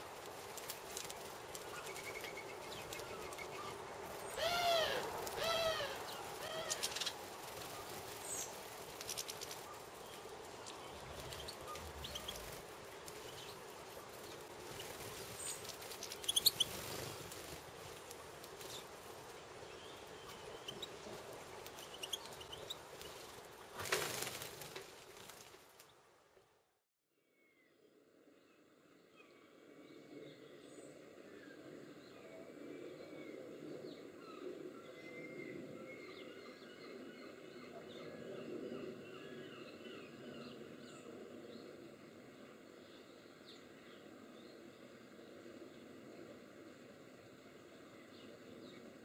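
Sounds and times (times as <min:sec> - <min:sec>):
birds calling: 0:01.6 - 0:12.6.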